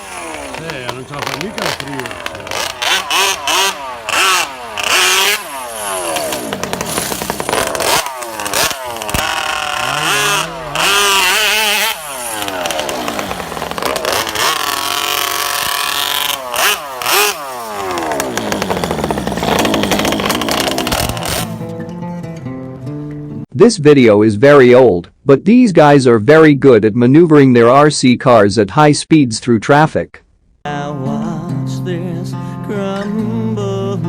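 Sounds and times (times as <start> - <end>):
model car engine revving: 0.0 - 21.7.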